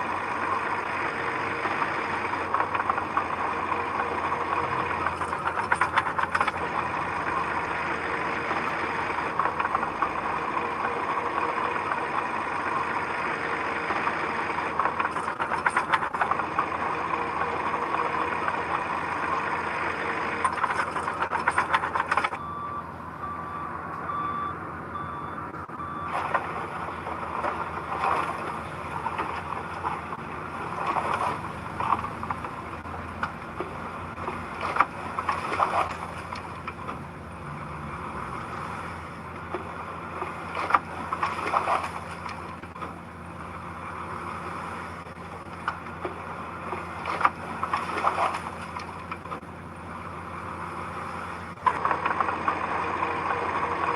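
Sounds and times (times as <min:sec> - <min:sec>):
diesel machinery running: 0:00.0 - 0:53.9
reversing alarm beeping: 0:22.4 - 0:26.3.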